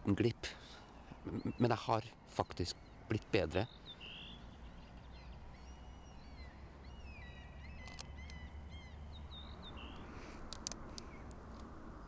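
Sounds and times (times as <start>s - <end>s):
small birds chirping and twittering: 0.0s - 12.0s
faint clicks: 7.8s - 8.4s, 9.9s - 11.7s.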